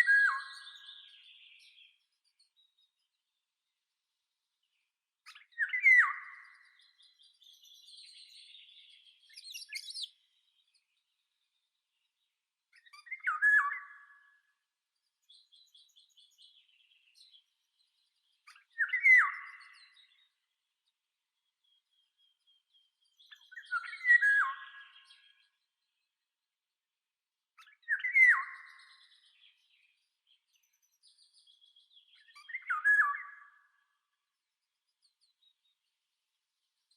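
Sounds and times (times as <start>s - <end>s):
high bird twittering: 9.3s - 10.1s.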